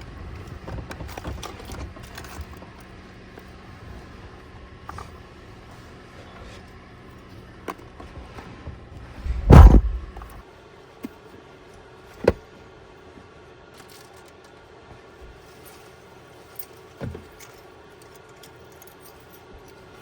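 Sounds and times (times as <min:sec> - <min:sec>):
sharp knock: 0:09.2 - 0:10.4
truck door slamming: 0:09.2 - 0:10.4.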